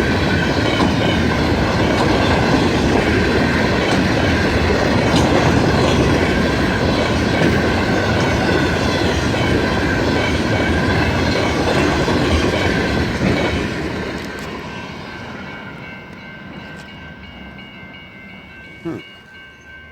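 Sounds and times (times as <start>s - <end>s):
high squeal of train wheels: 14.2s - 19.9s.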